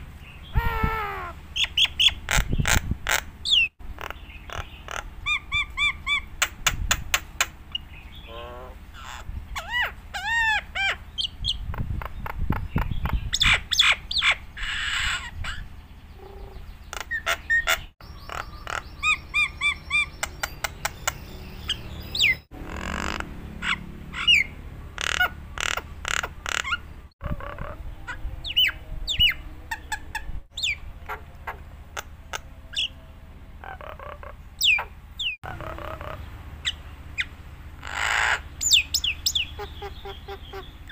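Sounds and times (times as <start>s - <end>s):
starling singing varied song: 15.5s - 40.9s.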